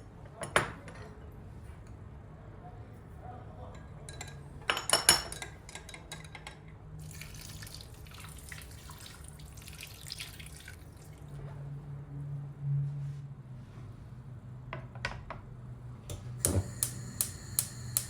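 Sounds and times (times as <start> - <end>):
low steady hum: 16.0 - 18.0.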